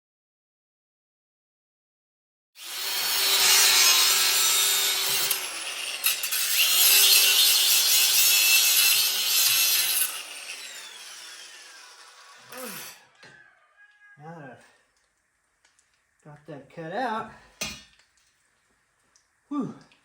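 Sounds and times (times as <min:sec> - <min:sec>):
angle grinder cutting steel: 0:02.6 - 0:13.3
motor winding down: 0:10.2 - 0:13.1.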